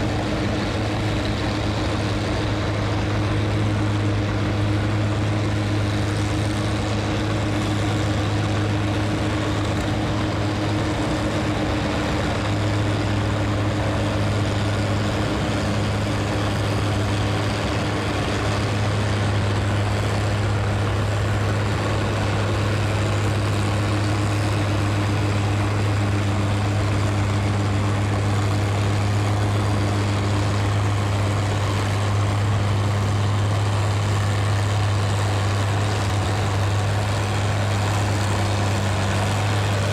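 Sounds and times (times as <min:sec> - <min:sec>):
heavy engine humming steadily: 0:00.0 - 0:39.9.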